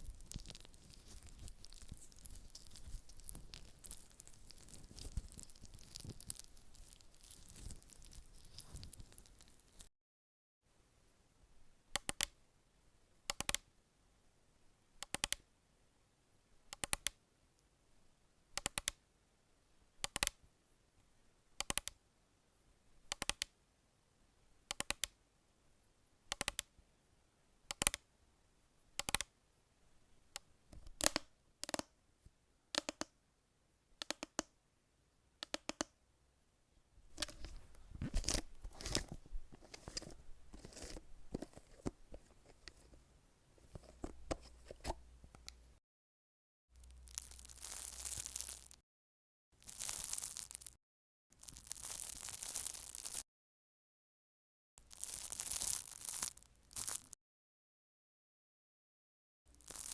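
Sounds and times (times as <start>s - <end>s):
crinkly rustling: 0.0s - 9.9s, 37.1s - 43.0s, 46.8s - 48.8s, 49.6s - 50.8s, 51.4s - 53.2s, 54.8s - 57.2s.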